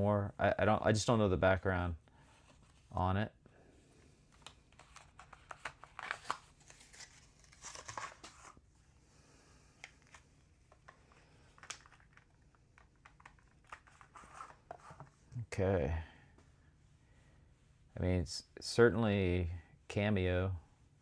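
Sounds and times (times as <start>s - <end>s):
packaging crinkling and rustling: 4.3s - 8.6s, 9.8s - 15.0s.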